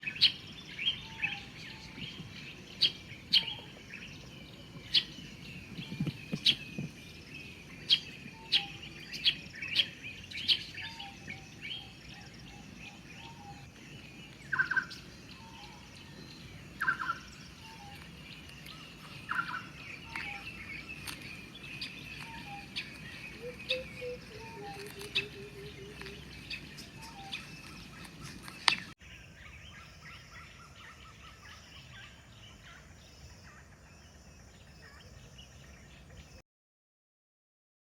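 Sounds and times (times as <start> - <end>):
low bird calls: 0.0 - 33.6
birds chirping: 0.0 - 36.4
low falling bird notes: 12.9 - 29.0.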